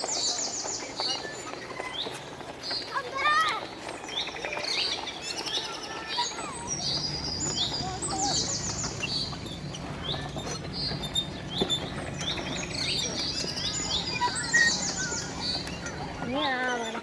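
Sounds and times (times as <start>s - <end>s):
small birds chirping: 0.0s - 17.0s
low steady hum: 6.5s - 16.5s.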